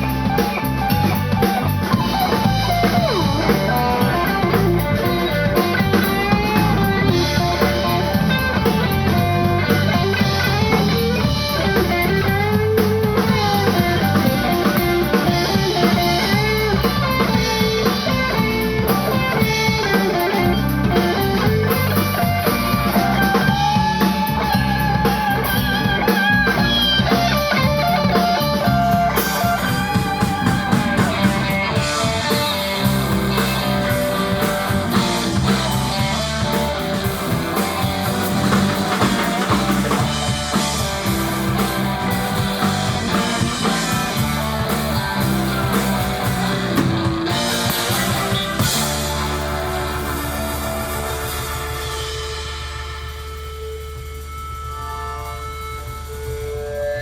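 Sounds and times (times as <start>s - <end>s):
blues-rock band playing: 0.0s - 57.0s
guitar lead with bending notes: 0.0s - 57.0s.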